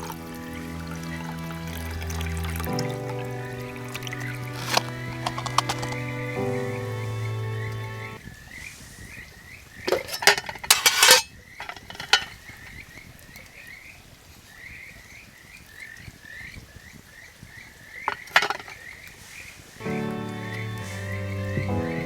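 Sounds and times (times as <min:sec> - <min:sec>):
sharp clicks and clatters: 0:04.6 - 0:06.0, 0:18.1 - 0:18.8
frogs chirping: 0:11.4 - 0:19.7.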